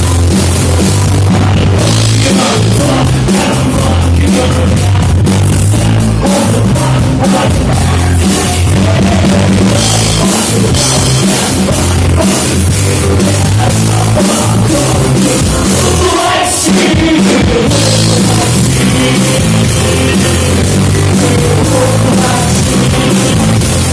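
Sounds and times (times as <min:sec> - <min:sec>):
drum kit beating: 0:00.0 - 0:23.9
rock band playing live: 0:00.0 - 0:23.9.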